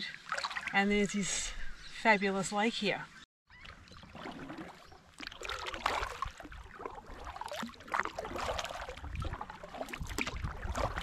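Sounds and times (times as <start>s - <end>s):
kayak paddle strokes in water: 3.6s - 11.0s.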